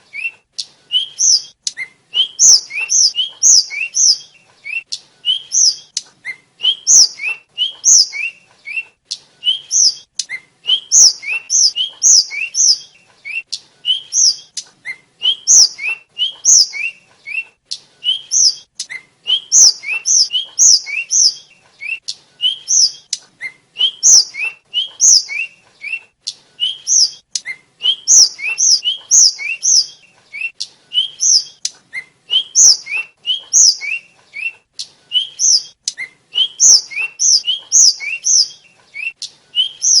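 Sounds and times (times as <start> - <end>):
bird whistling high notes: 26.6 - 34.5, 35.1 - 40.0.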